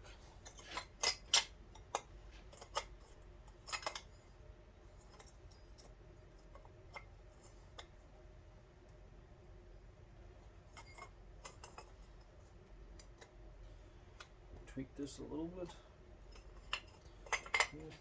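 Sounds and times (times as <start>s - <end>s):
low steady hum: 0.0s - 18.0s
small metal parts clicking: 16.3s - 18.0s.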